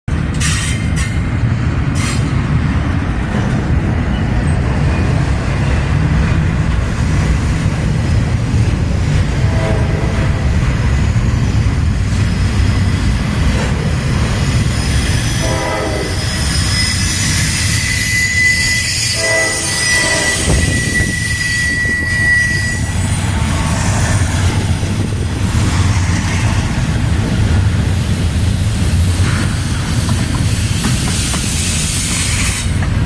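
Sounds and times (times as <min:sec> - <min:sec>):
diesel locomotive engine rumbling: 0:00.1 - 0:33.0.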